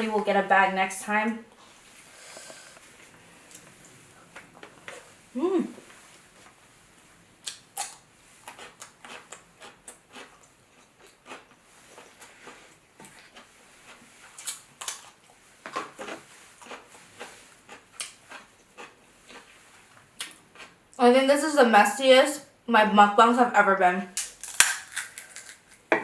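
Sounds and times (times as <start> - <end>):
chewing: 7.4 - 20.8
crab shell clicking and crackling: 24.2 - 25.9.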